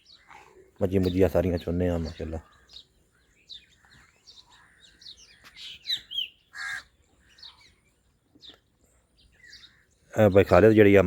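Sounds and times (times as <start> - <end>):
birds chirping: 0.0 - 11.0
harsh bird call: 0.1 - 7.8.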